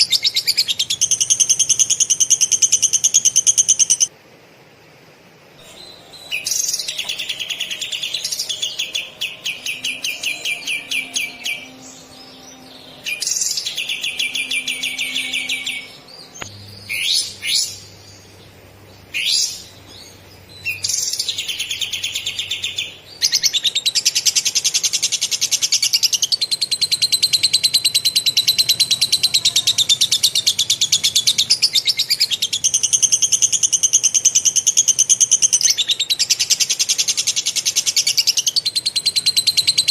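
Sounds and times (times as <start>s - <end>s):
songbird trilling: 5.6s - 18.2s, 19.1s - 39.9s.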